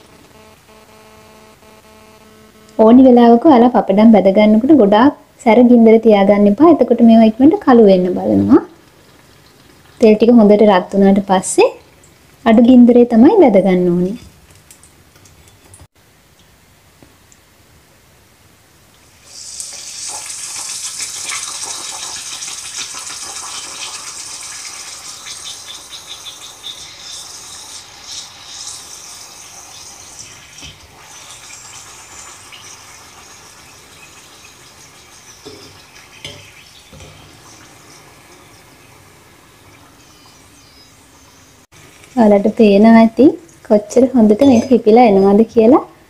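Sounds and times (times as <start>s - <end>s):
frying oil sizzling and crackling: 6.6s - 13.2s, 18.9s - 45.0s.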